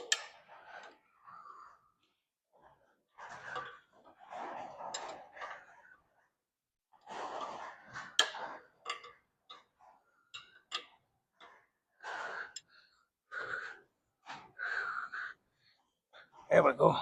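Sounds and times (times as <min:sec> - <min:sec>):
man breathing hard: 0:12.0 - 0:15.5.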